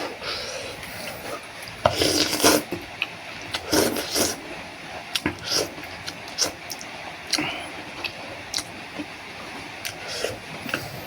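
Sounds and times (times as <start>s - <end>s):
slurping noodle soup: 0.0s - 2.8s, 3.5s - 4.5s, 5.2s - 8.7s, 9.9s - 11.0s.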